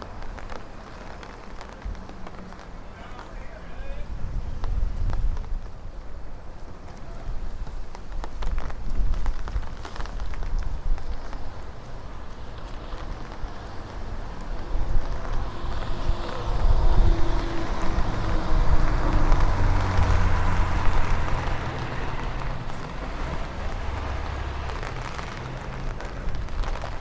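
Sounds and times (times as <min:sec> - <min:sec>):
wind rumble on microphone: 0:00.0 - 0:27.0
vehicle passing close: 0:12.7 - 0:27.0.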